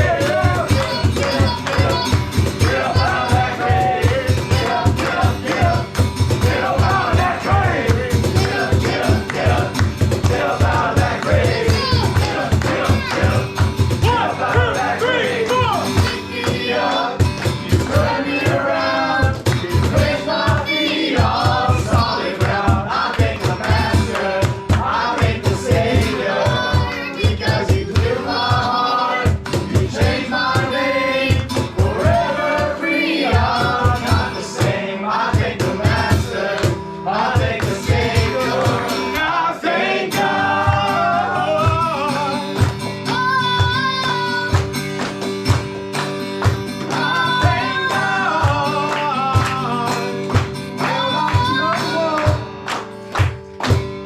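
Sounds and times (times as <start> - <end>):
steady beat: 0.0 - 39.2
voices singing worship song: 0.0 - 45.7, 46.4 - 52.6.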